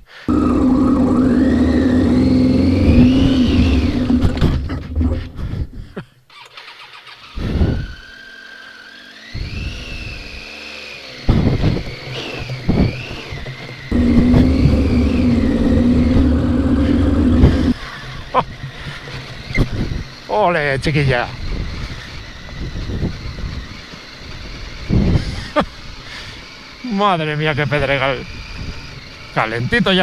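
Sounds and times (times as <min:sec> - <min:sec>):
motorcycle engine revving: 0:00.3 - 0:05.9, 0:09.1 - 0:17.9.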